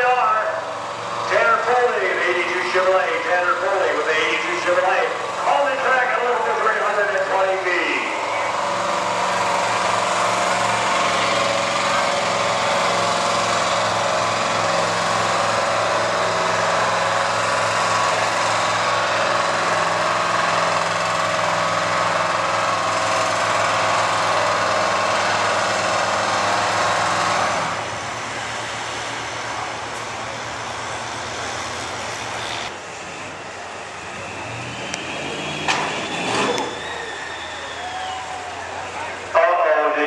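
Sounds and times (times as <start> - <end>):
pickup engine at high revs: 0.8 - 32.7, 34.1 - 39.9.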